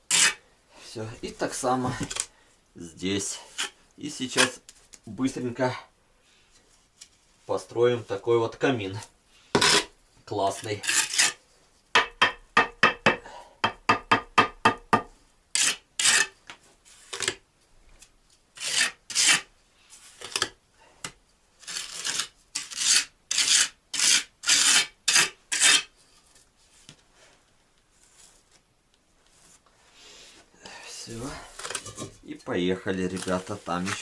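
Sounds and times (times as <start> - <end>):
trowel scraping mortar on bricks: 0.0 - 0.4, 3.3 - 4.6, 9.6 - 11.4, 15.5 - 17.4, 18.6 - 19.5, 21.6 - 26.0, 33.0 - 34.0.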